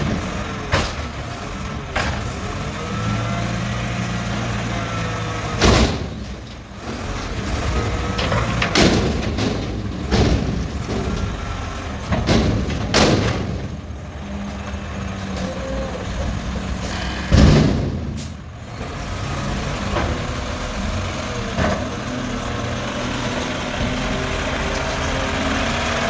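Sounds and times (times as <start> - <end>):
garbage truck running: 0.0 - 26.0.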